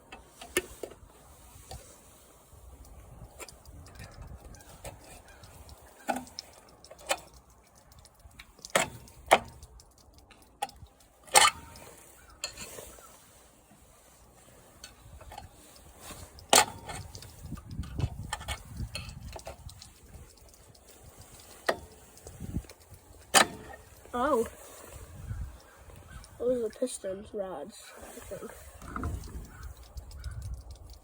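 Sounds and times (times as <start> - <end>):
low rumbling handling noise: 0.0 - 27.4, 28.1 - 31.0
metal tools clinking: 14.2 - 27.2.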